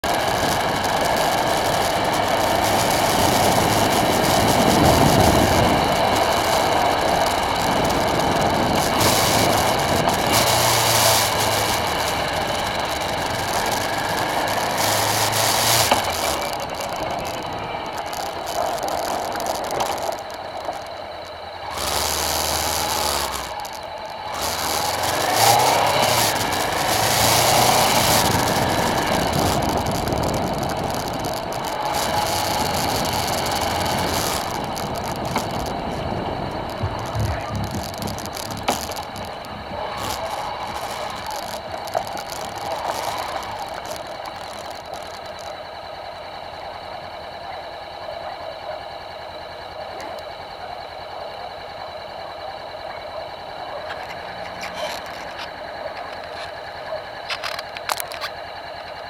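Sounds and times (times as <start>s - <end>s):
strong gusty wind: 0.0s - 20.1s, 22.6s - 44.0s.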